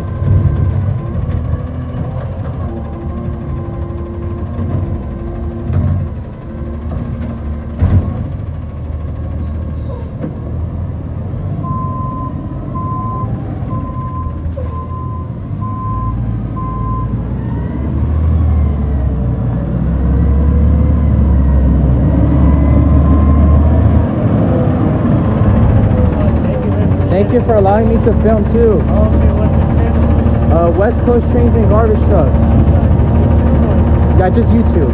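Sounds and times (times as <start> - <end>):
garbage truck engine running: 0.0 - 34.9
backup alarm beeping: 11.6 - 17.2.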